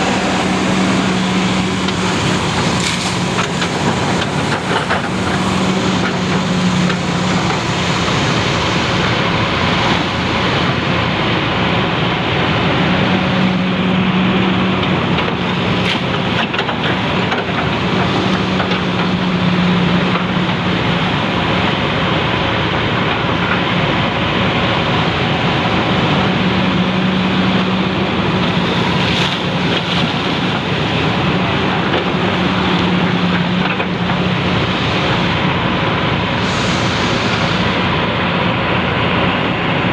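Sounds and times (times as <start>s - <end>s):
excavator diesel engines: 0.0s - 39.9s.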